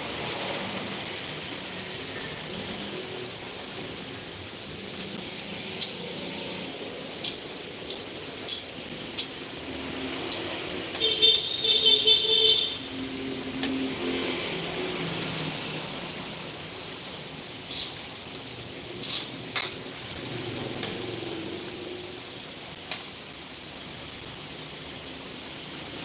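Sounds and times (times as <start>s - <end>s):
meatballs sizzling in hot oil: 0.0s - 26.0s.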